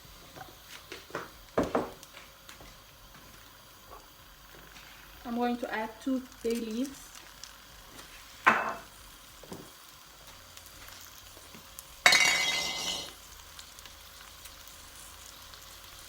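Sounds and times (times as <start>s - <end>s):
rice sizzling in oil: 0.0s - 16.0s
utensil clinking against pan: 12.1s - 13.1s.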